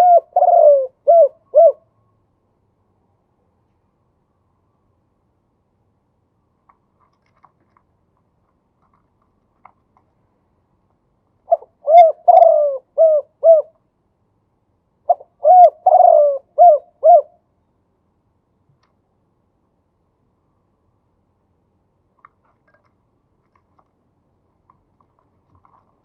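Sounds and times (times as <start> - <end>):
dove cooing: 0.0 - 1.9, 11.5 - 13.8, 15.1 - 17.4.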